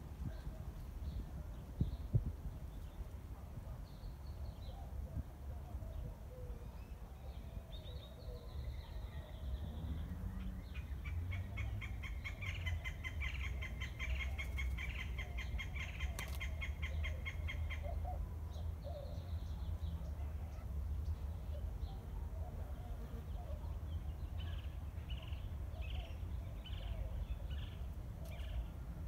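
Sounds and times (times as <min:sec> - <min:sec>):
birds calling and chattering: 0:05.6 - 0:28.9.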